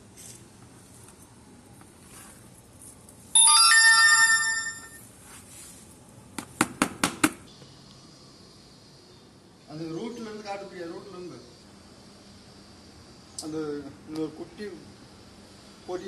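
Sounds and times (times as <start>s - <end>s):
bell-like ringing: 3.4s - 5.0s.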